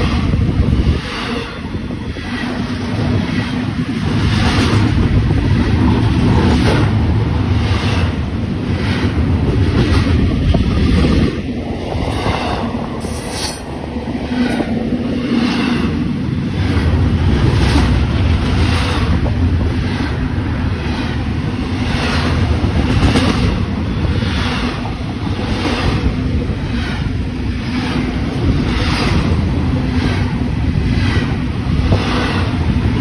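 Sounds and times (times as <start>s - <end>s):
low train rumble: 0.0s - 33.0s.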